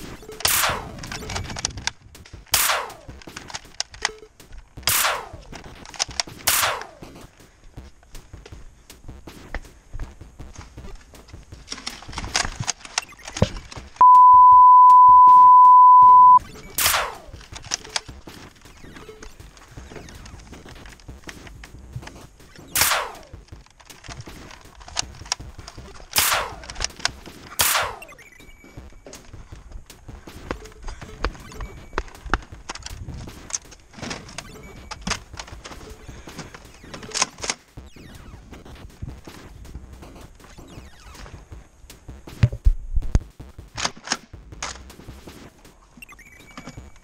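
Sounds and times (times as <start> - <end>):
small clicks: 0.2 - 4.7, 10.5 - 14.0
toy blaster shots: 2.5 - 3.4, 4.9 - 7.0, 16.8 - 17.4, 22.7 - 23.4, 26.2 - 26.8, 27.5 - 28.2.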